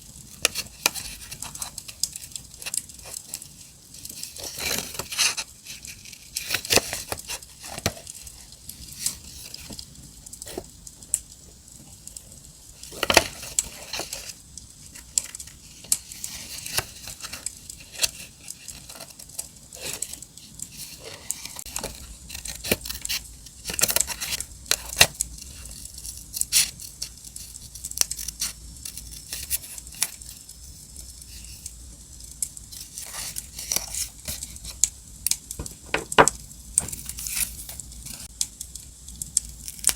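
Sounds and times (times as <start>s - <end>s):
campfire crackling hiss: 0.0s - 39.9s
paper tearing and crinkling: 4.0s - 7.9s.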